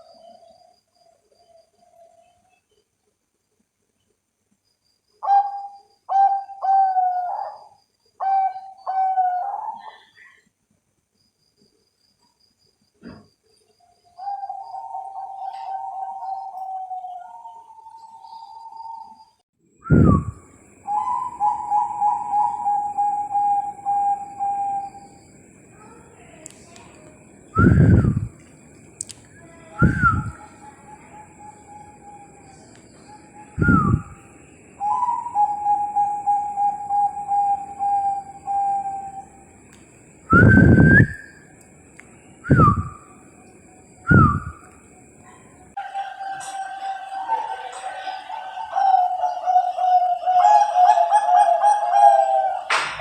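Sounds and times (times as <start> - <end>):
dove cooing: 5.2 - 10.2, 14.2 - 19.2, 19.9 - 28.4, 29.4 - 39.5, 45.3 - 53.0.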